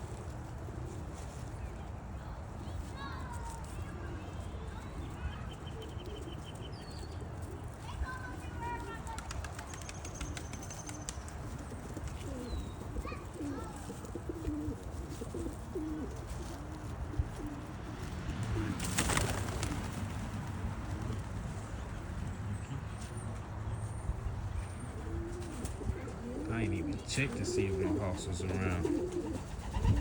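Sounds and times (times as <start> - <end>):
pigeons cooing: 0.1 - 1.5, 5.7 - 19.9, 24.3 - 30.0.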